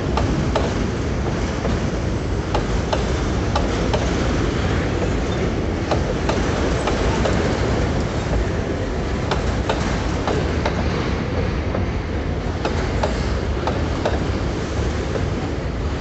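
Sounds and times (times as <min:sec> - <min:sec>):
train wheels rumbling on rails: 0:00.0 - 0:16.0
wheels clicking over rail joints: 0:00.0 - 0:16.0.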